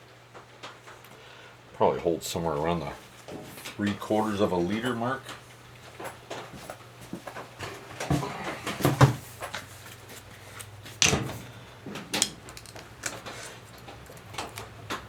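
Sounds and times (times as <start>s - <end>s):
faint steady hum: 0.0s - 15.0s
objects knocking and clunking: 3.2s - 15.0s.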